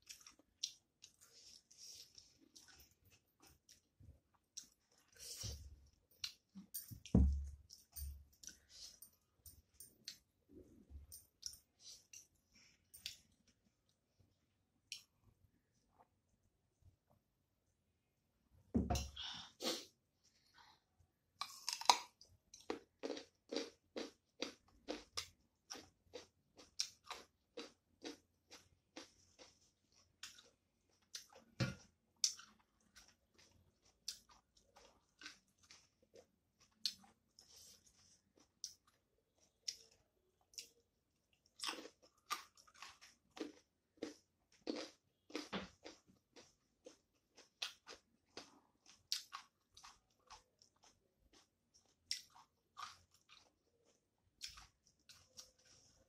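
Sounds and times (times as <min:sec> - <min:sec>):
person chewing food: 0:00.0 - 0:14.0, 0:21.4 - 0:56.0
low thump: 0:18.8 - 0:19.0.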